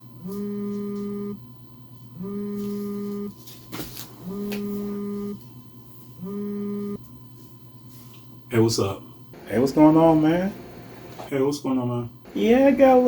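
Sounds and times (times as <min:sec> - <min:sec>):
phone ringing tone beeps: 0:00.2 - 0:01.4, 0:02.2 - 0:03.4, 0:04.2 - 0:05.4, 0:06.2 - 0:07.0.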